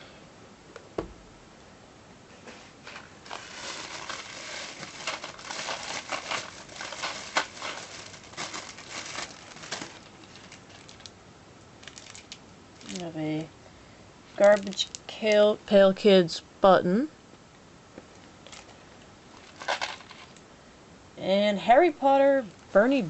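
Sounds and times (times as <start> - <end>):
packaging crinkling and rustling: 2.6 - 11.2, 11.8 - 13.2, 14.3 - 15.5, 18.1 - 20.4.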